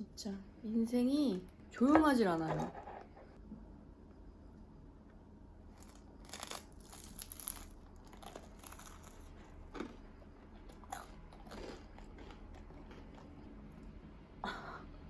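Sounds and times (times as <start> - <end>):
crunchy bites into toast: 5.8 - 13.3
chewing: 7.3 - 13.5.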